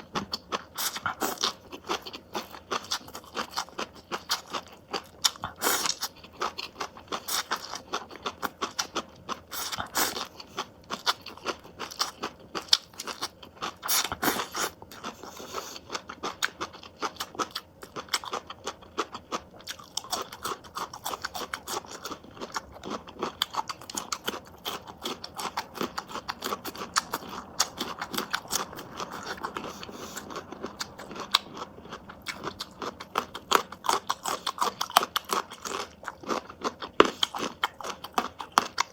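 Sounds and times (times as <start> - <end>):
person chewing crunchy food: 0.0 - 38.9.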